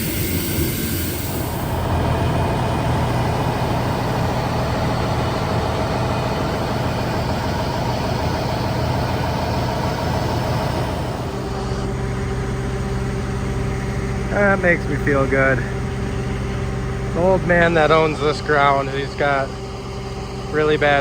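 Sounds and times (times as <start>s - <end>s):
heavy vehicle engine humming: 0.0s - 21.0s.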